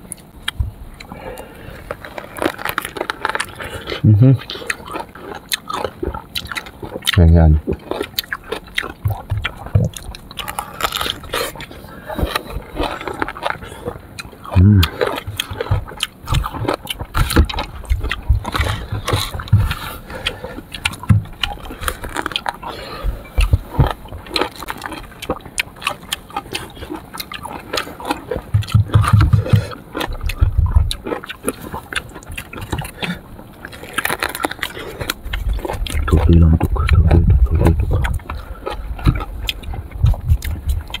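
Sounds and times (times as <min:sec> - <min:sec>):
person chewing with clicks: 0:00.0 - 0:41.0
low thuds: 0:15.3 - 0:20.1, 0:21.0 - 0:22.0, 0:23.0 - 0:24.4, 0:28.5 - 0:31.1, 0:35.4 - 0:41.0.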